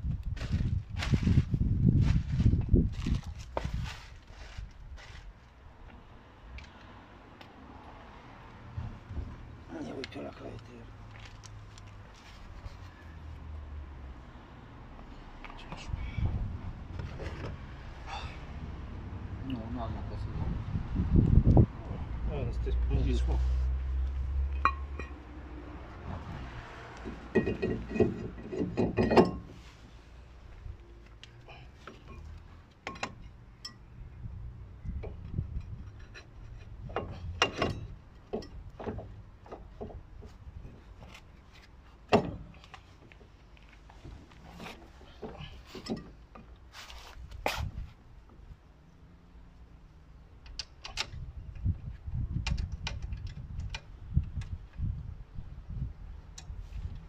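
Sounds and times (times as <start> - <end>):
metal tools knocking and clinking: 27.1 - 29.5, 31.9 - 33.9, 35.6 - 39.8, 45.2 - 46.2.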